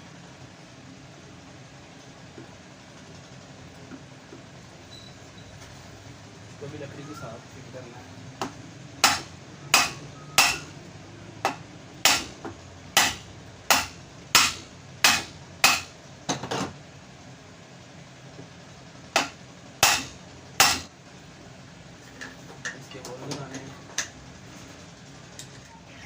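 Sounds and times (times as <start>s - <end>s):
hammer knocking: 8.4s - 10.6s, 11.4s - 15.9s, 19.2s - 20.9s.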